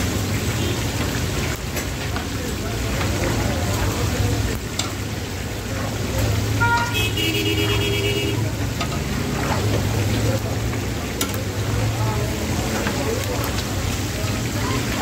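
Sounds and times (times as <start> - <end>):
food sizzling in frying fat: 0.0 - 15.0
street traffic: 0.0 - 15.0
vehicle horn: 6.6 - 8.5.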